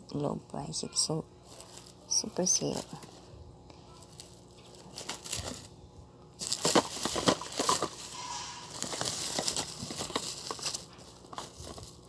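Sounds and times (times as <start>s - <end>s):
packaging crinkling and rustling: 1.4s - 3.3s, 3.9s - 5.8s, 6.4s - 12.0s.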